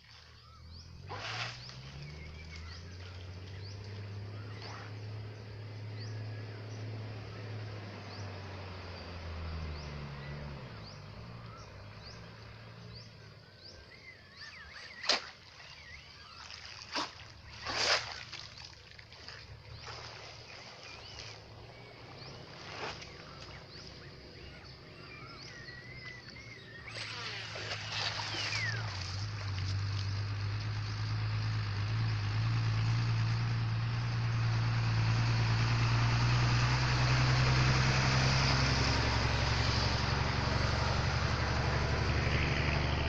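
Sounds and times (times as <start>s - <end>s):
birds calling and chirping: 0.0s - 34.7s
low hum: 0.4s - 43.0s
sharp knocks or splashes: 15.0s - 15.8s, 16.4s - 21.4s.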